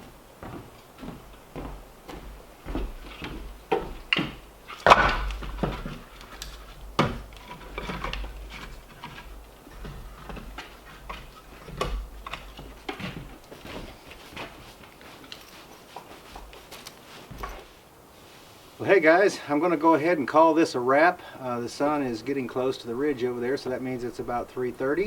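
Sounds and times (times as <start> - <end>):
wooden knocks and thumps: 0.4 - 17.8.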